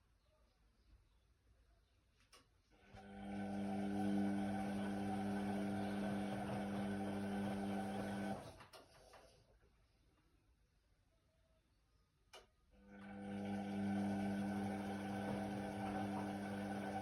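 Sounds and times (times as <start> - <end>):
washer-dryer humming and rushing: 2.9 - 8.8, 12.9 - 17.0.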